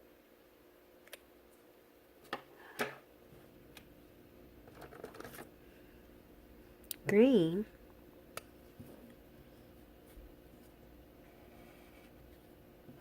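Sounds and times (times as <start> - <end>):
scratching on paper: 10.6 - 12.3.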